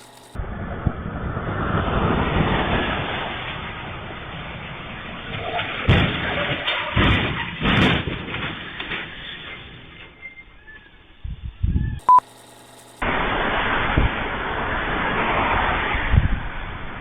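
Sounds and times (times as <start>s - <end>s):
rushing road noise: 0.0s - 6.9s, 13.0s - 17.0s.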